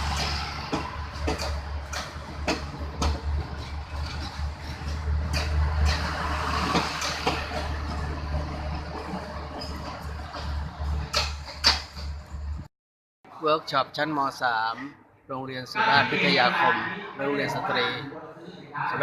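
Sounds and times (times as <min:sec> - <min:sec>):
knocks and rattles: 0:00.0 - 0:12.7
vehicle low rumble: 0:00.0 - 0:12.7.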